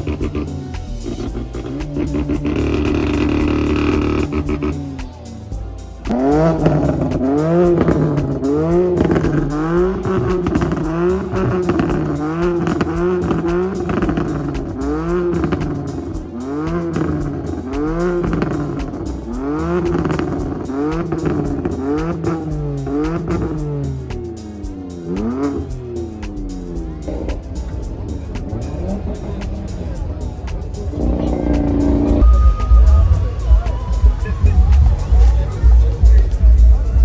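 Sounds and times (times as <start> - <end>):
car engines revving hard: 0.0 - 5.3, 6.1 - 32.3
low rumble: 26.5 - 37.0.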